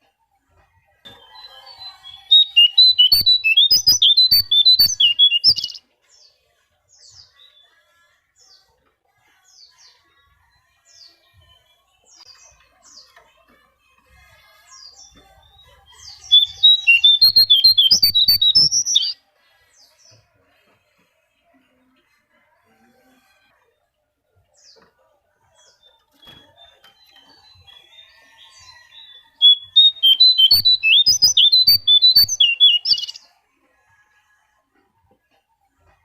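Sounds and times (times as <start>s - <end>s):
faint bird chirps: 0.6s - 5.9s, 14.8s - 19.2s, 25.5s - 33.3s
bird twittering chatter: 1.2s - 5.8s, 16.1s - 19.2s, 27.1s - 33.2s.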